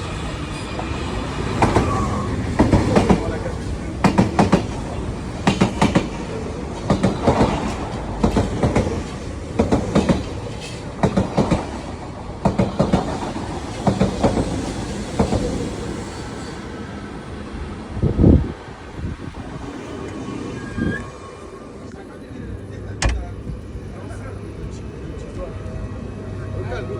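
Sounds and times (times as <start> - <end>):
train rumble: 0.0 - 26.9
train wheels clacking: 0.3 - 15.6.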